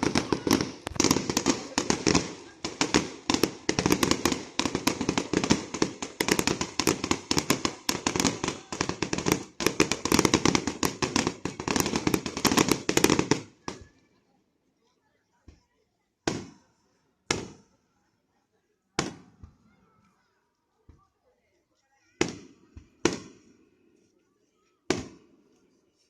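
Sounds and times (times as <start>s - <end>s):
fireworks cracking and popping: 0.0s - 14.0s, 16.3s - 16.7s, 17.3s - 17.7s, 22.2s - 23.6s, 24.7s - 25.3s.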